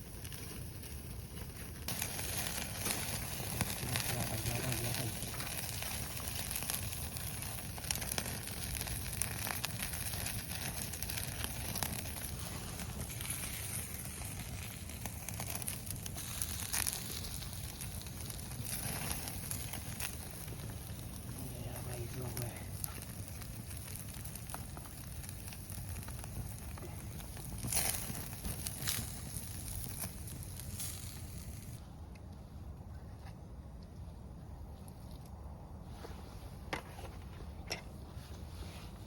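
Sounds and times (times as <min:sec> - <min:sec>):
wood fire crackling and popping: 0:00.0 - 0:31.8.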